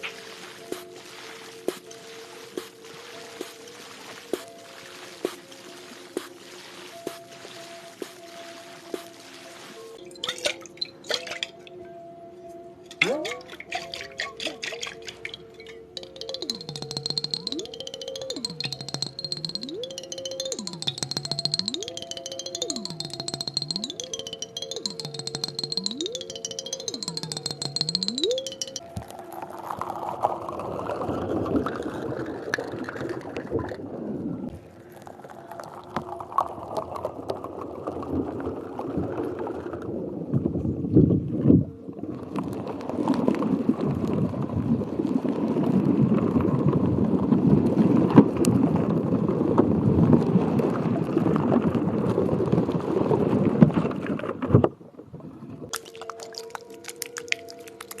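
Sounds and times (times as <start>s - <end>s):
water sloshing and gurgling: 0.0s - 11.8s, 12.9s - 16.0s.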